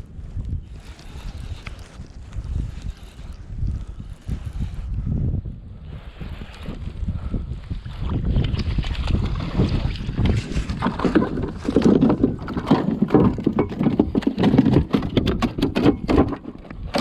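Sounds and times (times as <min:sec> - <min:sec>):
wind buffeting microphone: 0:00.0 - 0:17.0
water slapping against kayak: 0:07.7 - 0:17.0
sharp clicks and knocks: 0:10.3 - 0:17.0.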